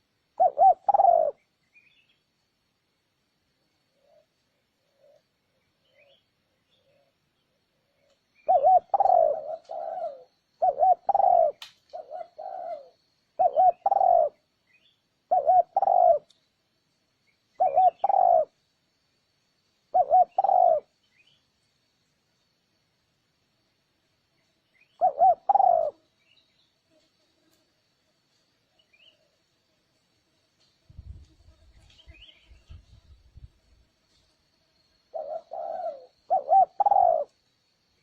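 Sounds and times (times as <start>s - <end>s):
dove cooing: 0.0s - 1.4s, 7.9s - 14.4s, 15.3s - 16.3s, 17.6s - 18.6s, 19.9s - 20.9s, 25.0s - 26.0s, 35.1s - 37.4s.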